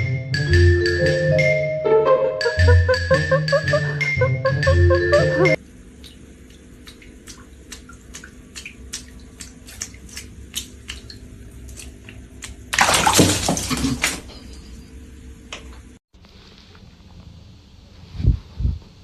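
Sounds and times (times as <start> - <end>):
water dripping: 5.6 - 14.2
water splashing: 5.9 - 14.4.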